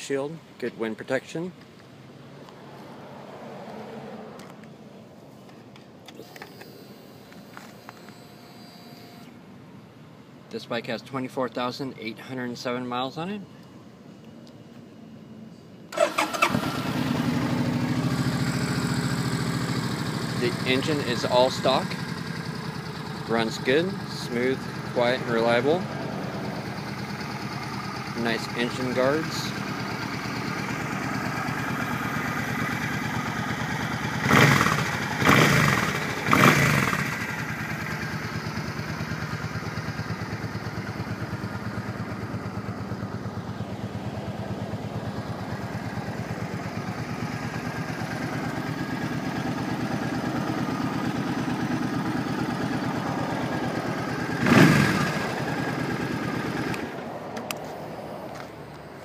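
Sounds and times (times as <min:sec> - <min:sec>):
motorcycle engine idling and revving: 0:15.9 - 0:59.0.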